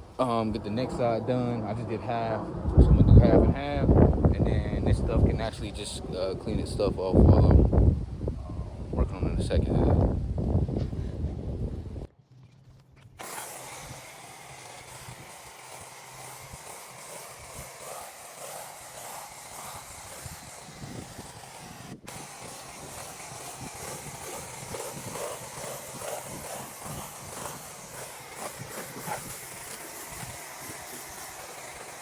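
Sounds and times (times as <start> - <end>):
pressure washer spraying: 13.2 - 32.0.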